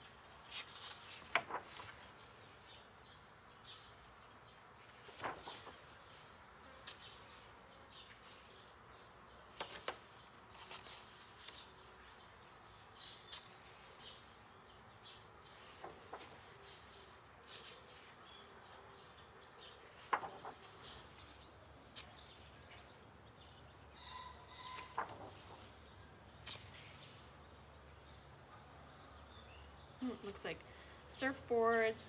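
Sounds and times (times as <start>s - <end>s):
page flips: 0.0s - 2.6s, 4.8s - 7.5s, 9.5s - 14.2s, 15.5s - 18.2s, 19.8s - 23.0s, 24.6s - 27.3s
paper rustling: 0.0s - 2.8s, 4.8s - 8.7s, 9.5s - 14.4s, 15.4s - 18.4s, 19.8s - 23.1s, 24.6s - 27.4s.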